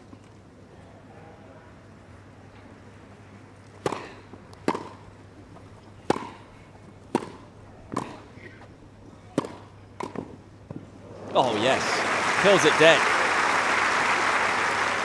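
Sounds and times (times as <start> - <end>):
low steady background noise: 0.0 - 15.0
tennis ball hit with rackets: 3.8 - 5.1, 6.0 - 6.5, 7.1 - 8.3, 9.3 - 10.8.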